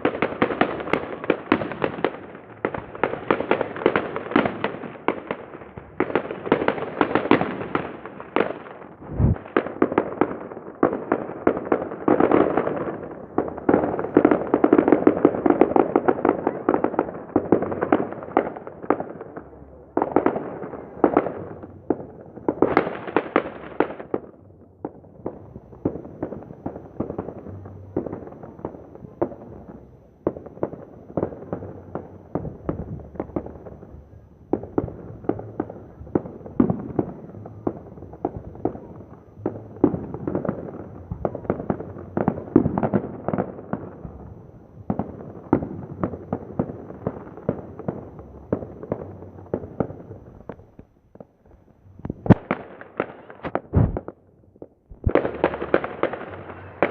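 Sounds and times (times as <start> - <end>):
fireworks bangs and crackling: 0.0 - 56.9
deep firework boom: 8.9 - 10.1, 53.4 - 54.2, 54.9 - 56.0.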